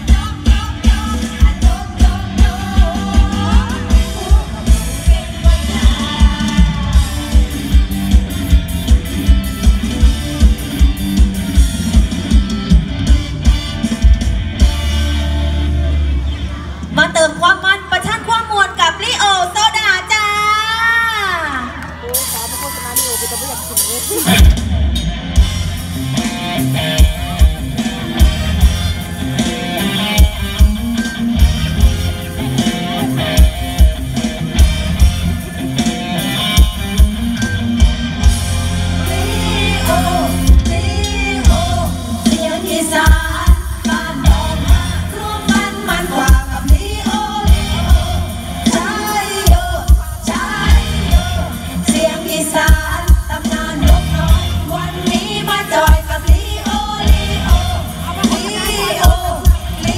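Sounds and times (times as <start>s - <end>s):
person singing: 0.0s - 7.9s, 38.9s - 59.9s
electric guitar melody: 0.0s - 17.2s, 21.8s - 59.9s
band music through loudspeakers: 0.0s - 59.9s.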